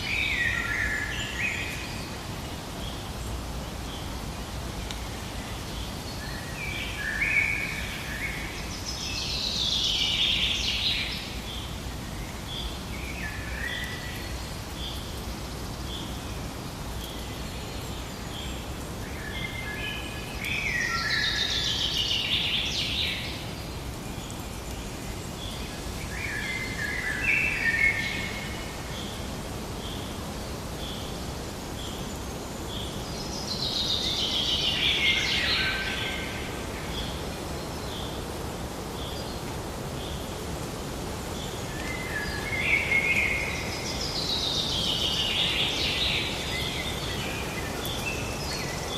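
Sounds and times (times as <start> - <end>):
low background hiss: 0.0 - 48.9
birds singing: 15.8 - 48.9.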